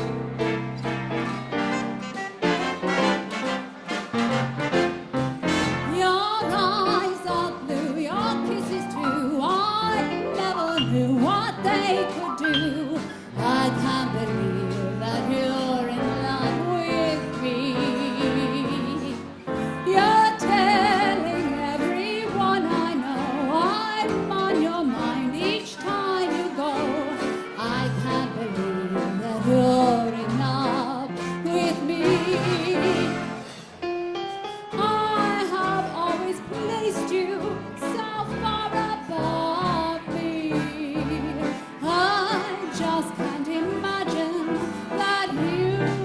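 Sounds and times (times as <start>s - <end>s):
dance band playing swing: 0.0s - 46.0s
person singing: 5.9s - 33.4s.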